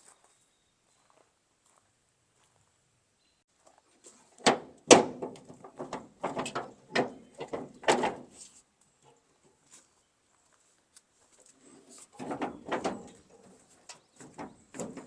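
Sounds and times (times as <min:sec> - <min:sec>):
tailgate knocks and clanks: 0:04.4 - 0:08.3, 0:12.2 - 0:13.2, 0:14.2 - 0:15.0
small metal rattles: 0:04.4 - 0:08.4, 0:12.1 - 0:15.0.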